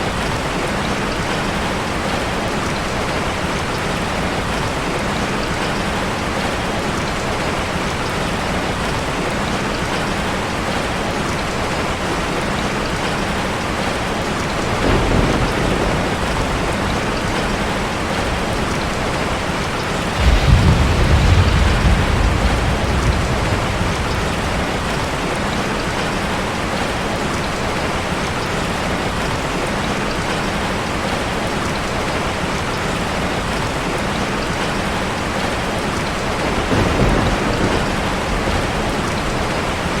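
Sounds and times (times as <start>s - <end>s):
deep rumbles: 20.1s - 25.6s.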